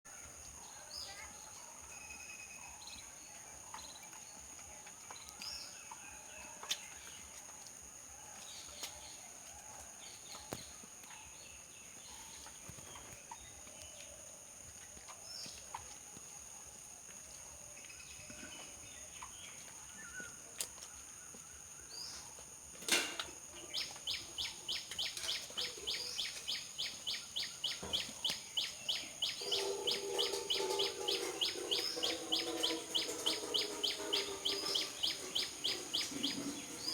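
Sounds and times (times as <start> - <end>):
bird chirps: 23.6 - 36.9
high insect whine: 23.7 - 36.9.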